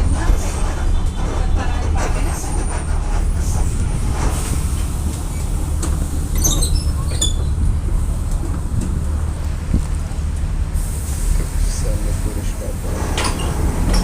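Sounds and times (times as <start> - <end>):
squeaks and rattles from bus body: 0.0 - 9.0, 12.8 - 14.0
bus engine and road rumble: 0.0 - 14.0.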